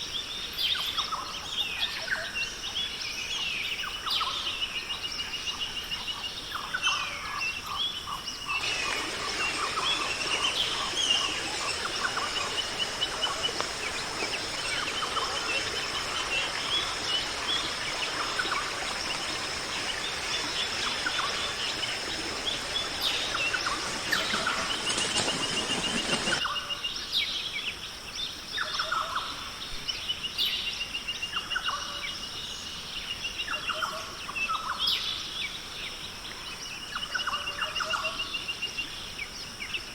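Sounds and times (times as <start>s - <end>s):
birds calling: 8.1s - 26.6s
hiss: 8.6s - 26.4s.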